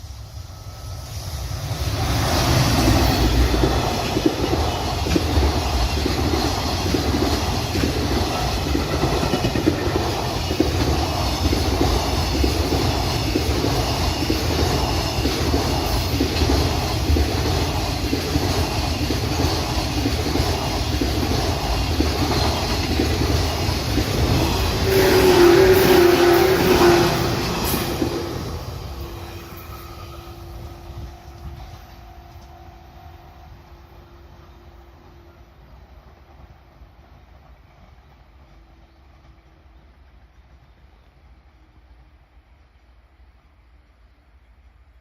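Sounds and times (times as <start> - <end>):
freight train wheels clattering: 2.3 - 32.6.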